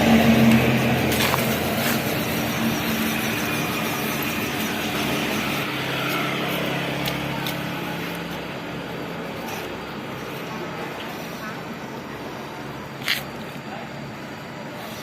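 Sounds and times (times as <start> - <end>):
rushing noise: 0.0 - 9.3
toy truck motor humming: 0.3 - 8.0.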